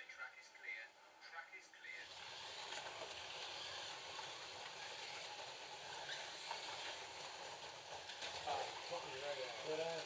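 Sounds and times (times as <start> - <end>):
slot cars whirring: 2.0 - 10.0.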